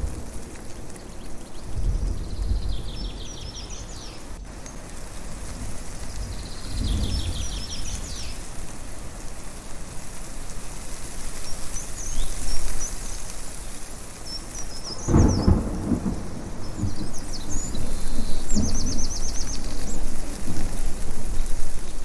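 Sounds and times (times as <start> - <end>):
thunder rumbling: 0.0 - 4.5, 5.4 - 8.3, 14.8 - 22.0
wind and rain rushing: 0.0 - 22.0
birds chirping: 0.7 - 4.8, 11.7 - 20.3.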